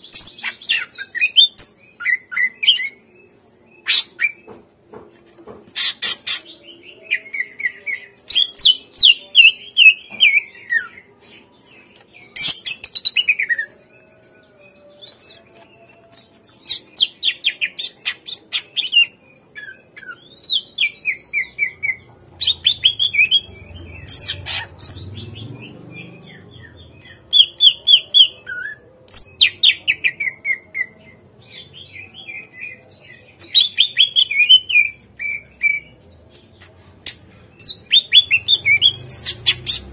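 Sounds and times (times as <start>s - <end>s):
bird song chattering phrases: 16.7s - 30.7s.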